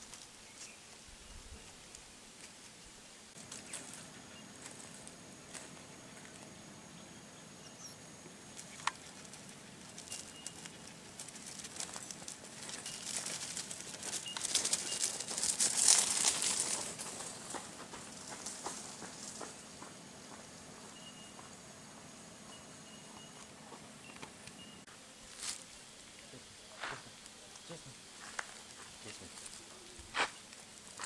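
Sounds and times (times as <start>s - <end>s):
dry rustling and crackling: 8.5s - 19.6s, 27.1s - 31.0s.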